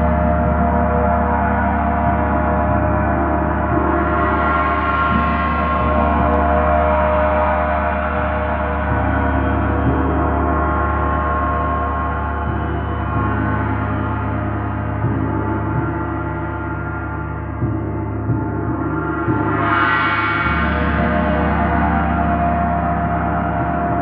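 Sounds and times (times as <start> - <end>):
deep drone: 0.0 - 24.0.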